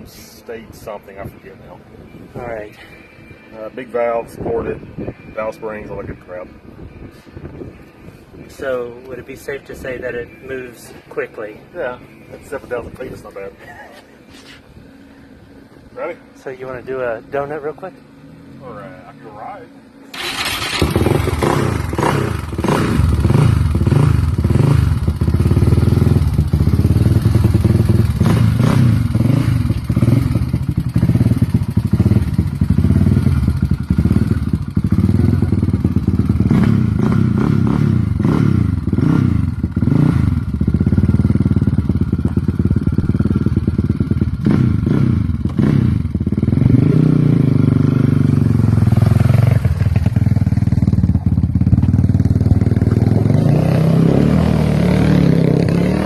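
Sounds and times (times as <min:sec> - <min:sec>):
atv engine revving: 0:16.8 - 0:56.0.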